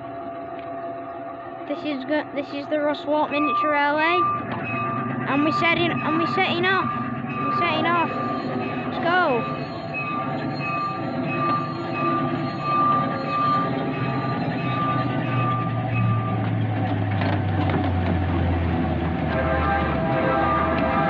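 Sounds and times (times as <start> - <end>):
locomotive engine running: 0.0 - 21.0
train rolling on track: 0.0 - 21.0
repeated ringing tone: 2.1 - 16.6.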